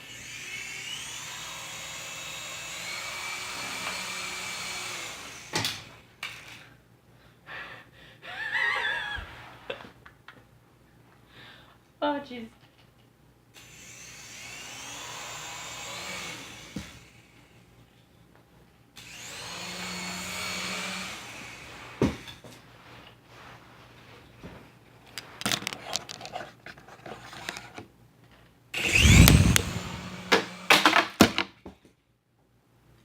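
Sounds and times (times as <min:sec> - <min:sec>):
toy helicopter motor whining: 0:00.0 - 0:05.9, 0:13.6 - 0:17.3, 0:19.0 - 0:21.6, 0:28.8 - 0:30.9.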